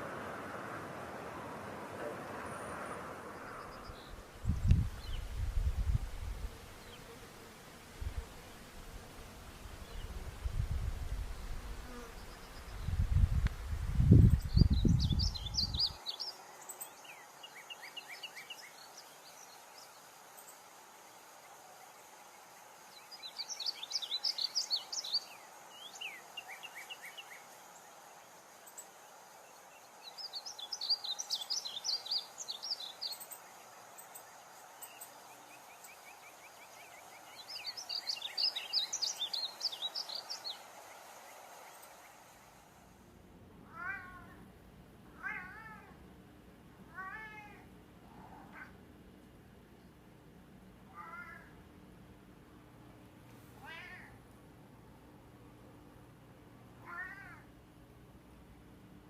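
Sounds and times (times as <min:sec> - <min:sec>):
songbird twittering: 0:14.1 - 0:20.5, 0:22.9 - 0:27.5, 0:29.5 - 0:42.2.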